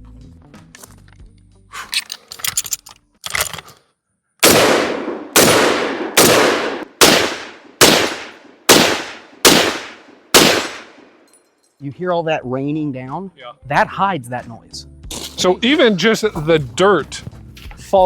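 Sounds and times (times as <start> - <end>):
metallic clicks of rifle handling: 0.7 - 3.9
rifle shots: 4.4 - 11.1.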